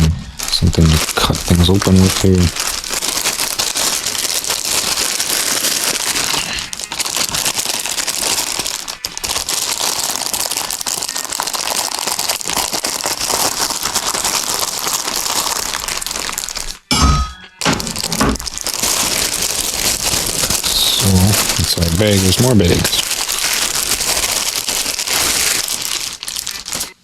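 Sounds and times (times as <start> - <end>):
plastic bags crinkling: 0.0 - 27.0.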